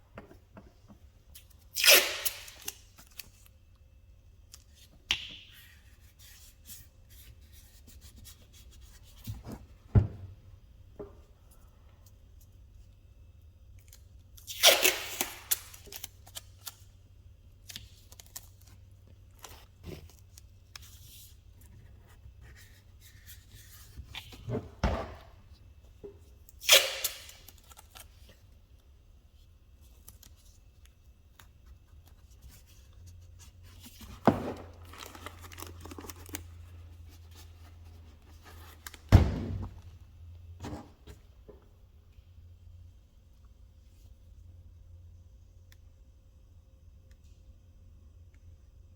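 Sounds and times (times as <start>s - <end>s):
masking tape ripping: 1.7s - 2.8s, 14.4s - 16.4s, 26.6s - 28.0s.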